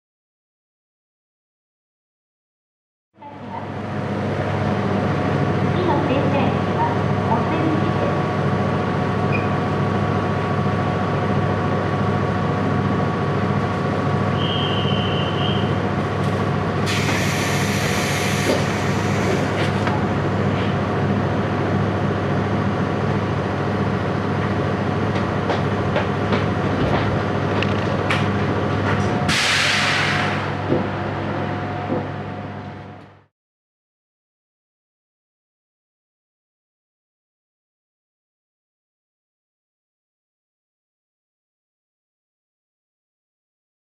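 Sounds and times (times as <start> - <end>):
electric train hum: 3.2 - 33.3
air hissing: 16.8 - 19.7, 29.3 - 30.5.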